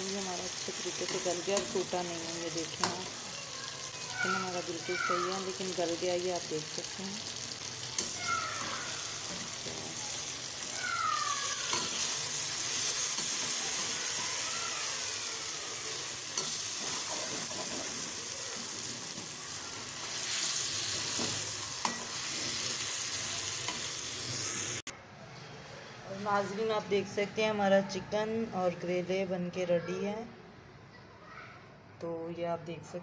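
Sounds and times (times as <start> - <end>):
chicken sizzling in oil: 0.0 - 24.9
metal spoon scraping a pan: 0.6 - 3.2, 11.5 - 14.2, 16.3 - 18.2, 18.8 - 24.0.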